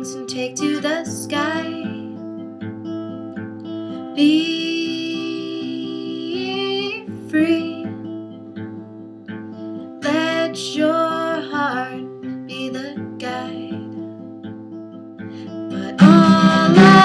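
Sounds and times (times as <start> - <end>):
woman singing wordless notes: 0.0 - 2.0, 4.2 - 7.9, 10.0 - 13.9, 15.7 - 17.0
acoustic guitar strumming: 13.9 - 17.0.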